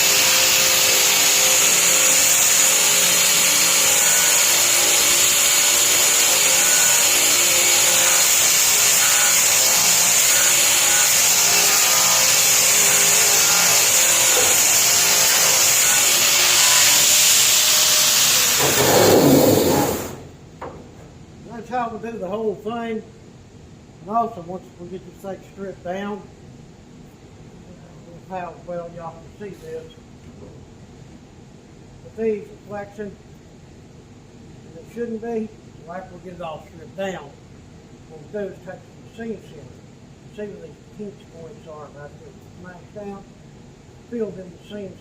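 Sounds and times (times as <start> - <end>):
power sander grinding metal: 0.0 - 20.2.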